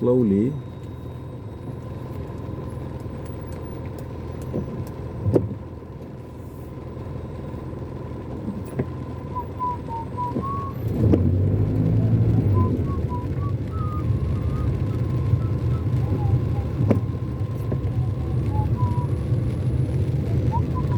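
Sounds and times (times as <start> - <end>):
engine and road rumble: 0.0 - 20.9
faint wavering whistle: 9.0 - 10.8, 12.4 - 19.2, 20.5 - 20.9.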